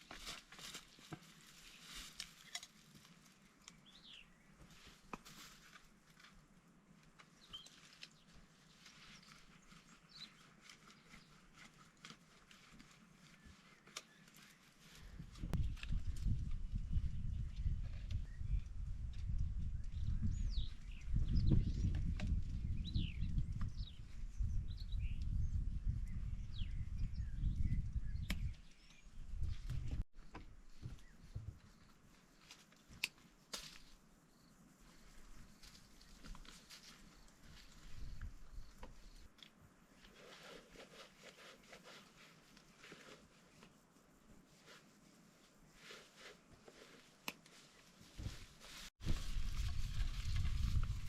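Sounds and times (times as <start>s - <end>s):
birds chirping and singing: 19.7s - 31.9s.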